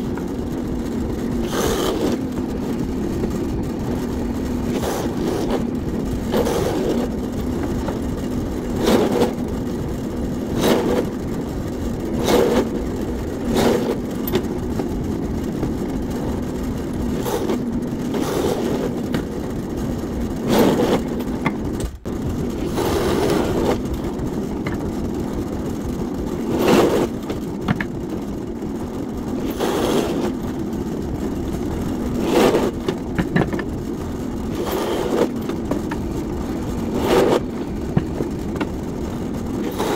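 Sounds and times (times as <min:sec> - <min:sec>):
machine hum: 0:00.0 - 0:39.9
short scraping strokes: 0:01.4 - 0:02.4, 0:04.7 - 0:08.0, 0:29.4 - 0:30.4, 0:34.5 - 0:35.4, 0:36.8 - 0:38.4.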